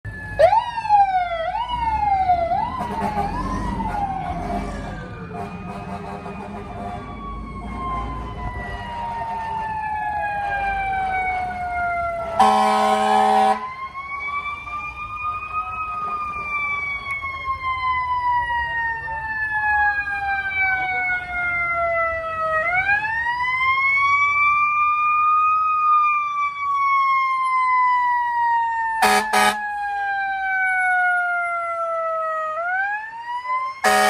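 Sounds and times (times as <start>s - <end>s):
fire engine siren wailing: 0.0s - 34.0s
air horn blast: 12.2s - 13.6s, 29.0s - 29.6s.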